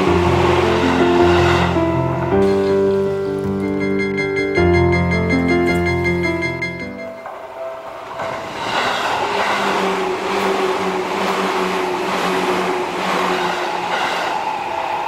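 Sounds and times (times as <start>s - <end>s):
train wheels on rail: 0.0s - 3.6s, 7.0s - 15.0s.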